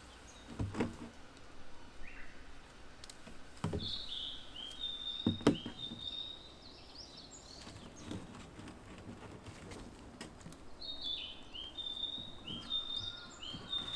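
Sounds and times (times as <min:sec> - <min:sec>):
songbird singing: 0:00.0 - 0:13.9
knocks: 0:05.2 - 0:06.0.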